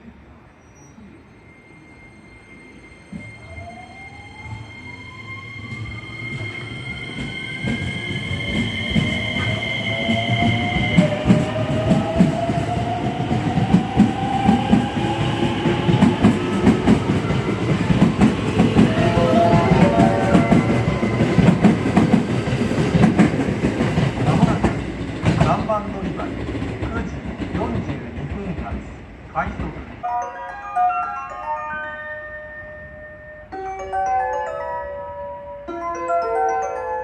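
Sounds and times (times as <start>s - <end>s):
steady high tones: 1.3s - 23.2s, 30.0s - 37.0s
train traction motor whine: 13.8s - 22.9s.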